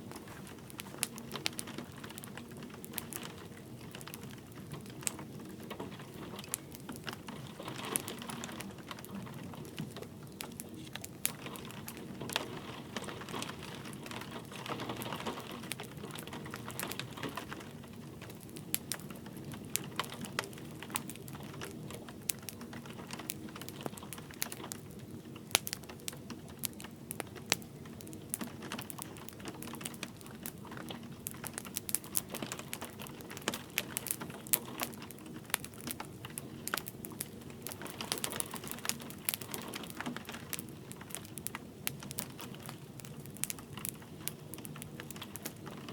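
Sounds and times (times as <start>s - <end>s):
light rain pattering: 0.0s - 45.9s
wood fire crackling and popping: 0.0s - 45.9s.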